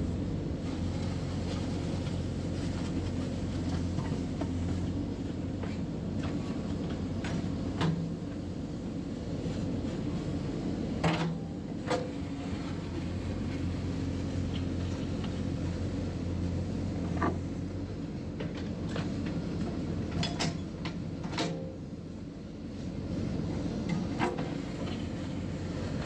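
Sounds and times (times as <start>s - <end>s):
diesel engine running: 11.7s - 26.0s.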